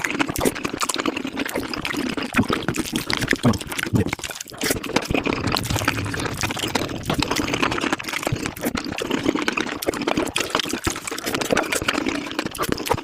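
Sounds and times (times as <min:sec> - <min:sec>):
wet slurping of soup: 0:00.0 - 0:13.0.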